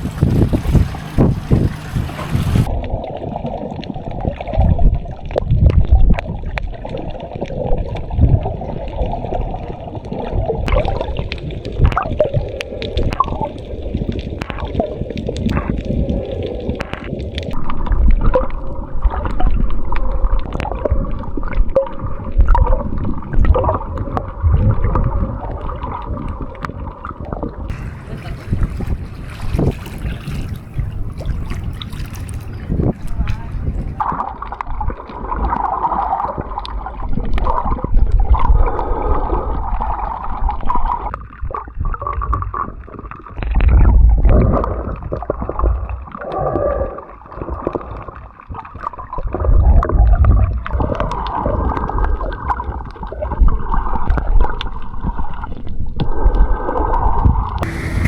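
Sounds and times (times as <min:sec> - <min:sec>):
low thumps: 0:00.0 - 0:02.7
muffled water gurgling: 0:00.0 - 0:58.0.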